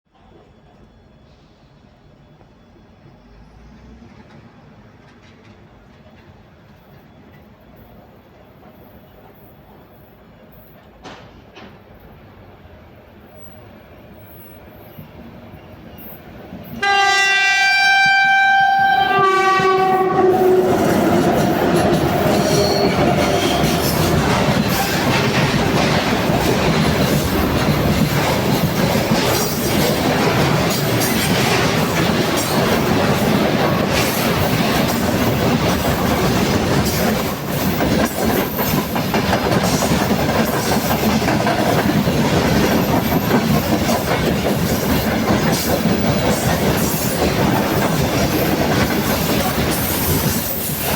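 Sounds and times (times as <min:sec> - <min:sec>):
freight train wagons rolling by: 0:00.1 - 0:50.9
locomotive horn: 0:16.8 - 0:23.9.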